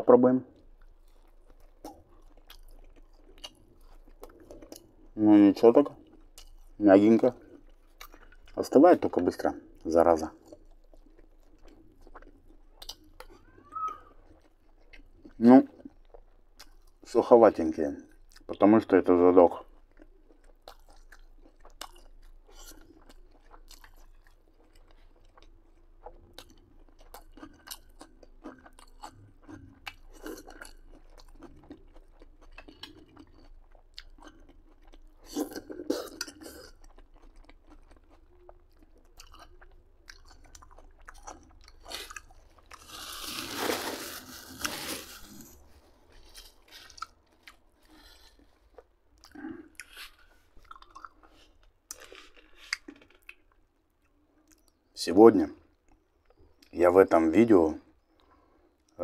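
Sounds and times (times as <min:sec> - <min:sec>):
chewing food: 0:00.5 - 0:55.0, 0:55.6 - 0:56.8.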